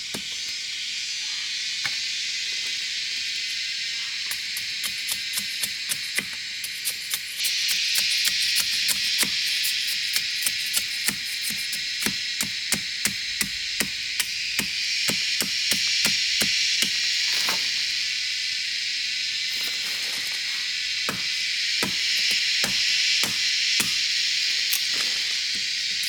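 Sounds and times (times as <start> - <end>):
high drone of insects: 0.0 - 26.0
chopping strikes: 21.0 - 26.0.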